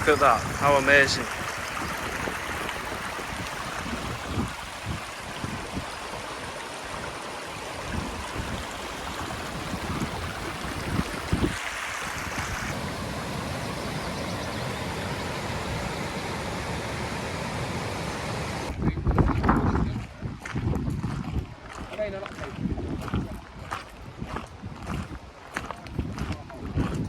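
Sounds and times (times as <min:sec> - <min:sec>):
waterfall rushing: 0:00.0 - 0:18.7.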